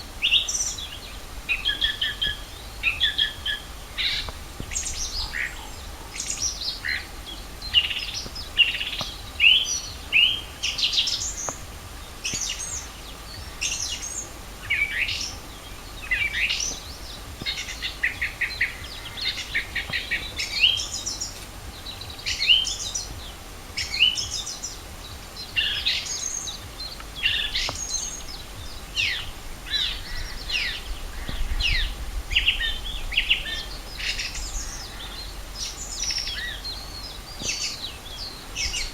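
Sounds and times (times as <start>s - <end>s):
songbirds chorus: 0.0s - 38.9s.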